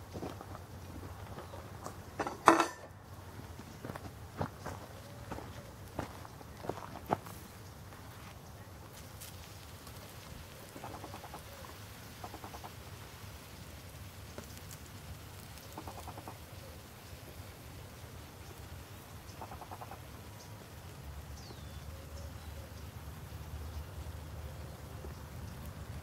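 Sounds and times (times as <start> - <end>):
bird rattling trills: 10.6 - 12.8, 15.5 - 17.2, 18.4 - 20.5.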